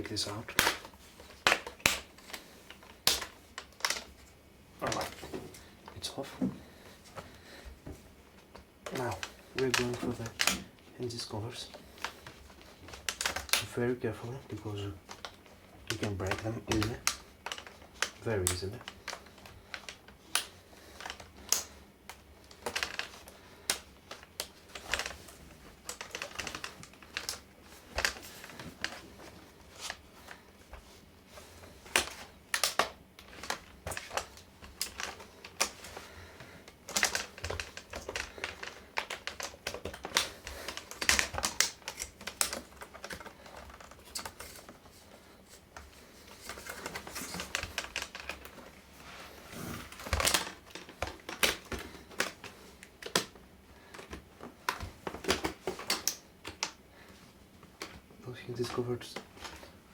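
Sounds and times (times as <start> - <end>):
plastic clicks and snaps: 0.5 - 4.1, 11.7 - 13.7, 14.7 - 25.2, 31.9 - 44.8, 49.9 - 56.8.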